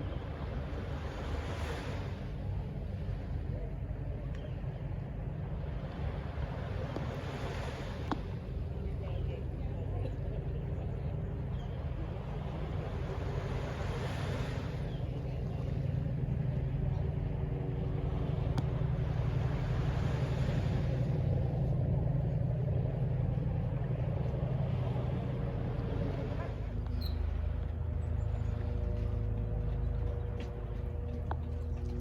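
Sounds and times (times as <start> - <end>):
distant traffic rumble: 0.0 - 32.0
vehicle passing: 17.6 - 32.0.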